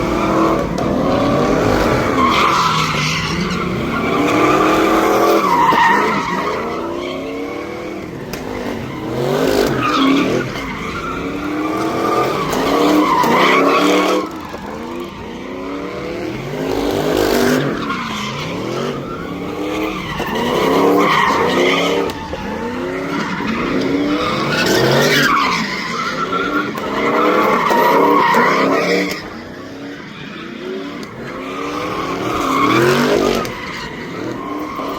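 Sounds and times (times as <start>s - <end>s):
car engine revving hard: 0.0s - 6.1s
tyres squealing: 1.3s - 7.5s, 17.5s - 34.9s.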